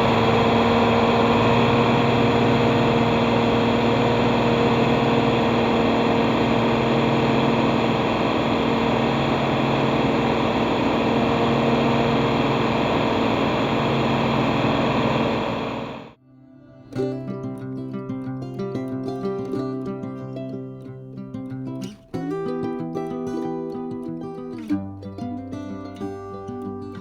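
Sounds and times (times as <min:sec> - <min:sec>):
hammer mill humming: 0:00.0 - 0:16.2
tractor diesel engine running: 0:00.0 - 0:16.2.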